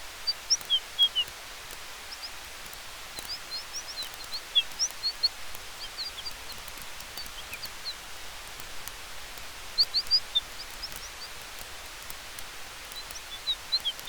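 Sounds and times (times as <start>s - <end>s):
campfire crackle: 0.0s - 14.0s
wind through trees: 0.0s - 14.0s
high bird chirps: 0.3s - 1.3s, 3.2s - 8.0s, 9.8s - 11.4s, 12.9s - 14.0s.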